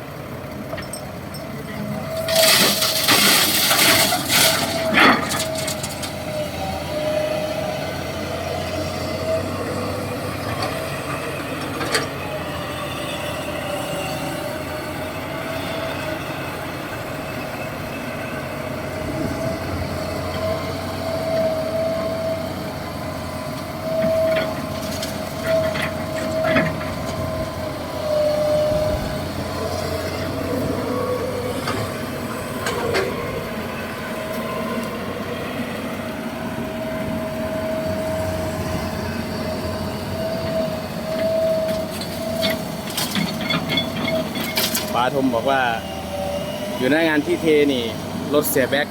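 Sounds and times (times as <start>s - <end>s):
diesel truck engine rumbling: 0.0s - 48.9s
clunks and rattles: 0.4s - 6.7s, 9.7s - 12.4s, 18.9s - 34.7s, 37.8s - 45.1s.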